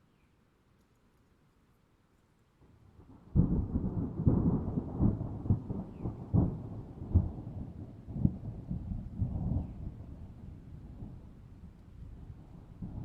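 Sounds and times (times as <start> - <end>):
thunder rumbling and clapping: 3.3 - 11.3.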